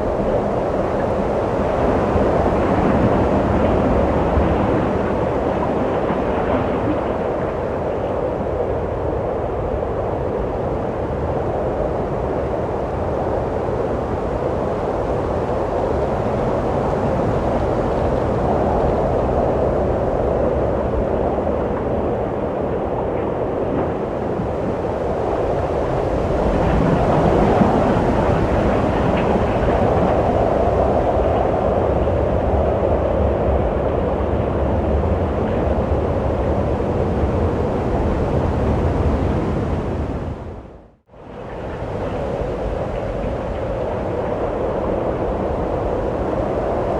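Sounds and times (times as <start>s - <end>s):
wind blowing: 0.0s - 46.9s.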